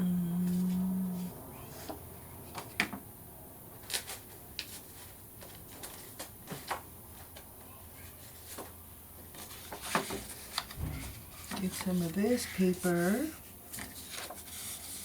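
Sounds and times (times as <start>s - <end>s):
paper taps and rustles: 8.5s - 12.0s.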